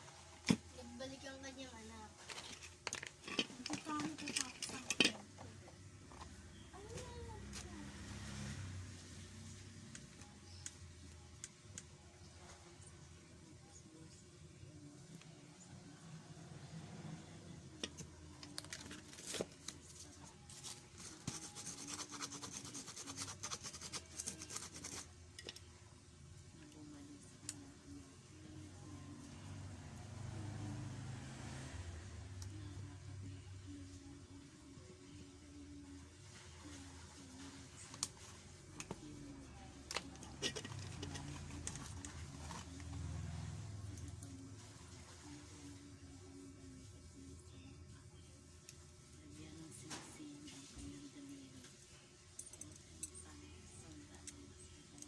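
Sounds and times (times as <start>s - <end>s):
scraping and scratching: 2.2s - 7.7s, 17.8s - 25.6s, 39.9s - 45.8s.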